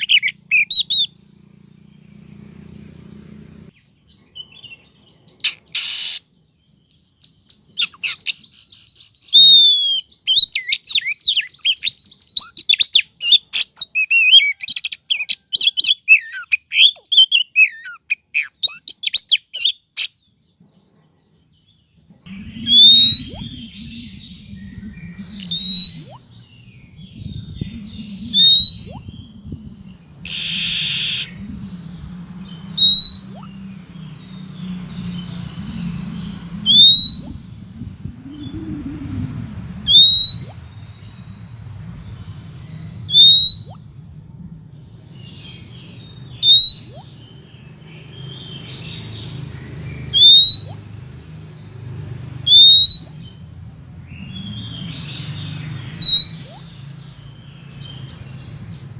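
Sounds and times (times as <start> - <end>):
bird chirps and whistles: 0.0 - 1.1, 5.4 - 6.2, 7.8 - 19.8, 22.3 - 26.4, 27.2 - 29.6, 30.2 - 33.6, 36.5 - 39.2, 39.8 - 40.7, 43.1 - 44.0, 46.3 - 47.2, 50.1 - 50.9, 52.5 - 53.3, 56.0 - 56.8
rising bird whistles: 9.2 - 13.4, 22.3 - 33.6, 35.2 - 41.4, 43.0 - 44.1, 46.3 - 47.2, 50.1 - 50.9, 52.5 - 53.4, 56.0 - 56.8
low steady hum: 22.1 - 46.4.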